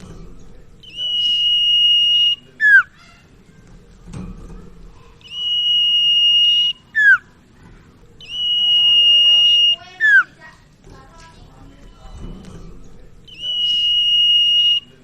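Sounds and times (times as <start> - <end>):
bird whistling song: 0.8 - 3.0, 5.2 - 7.4, 8.2 - 10.4, 13.2 - 15.0.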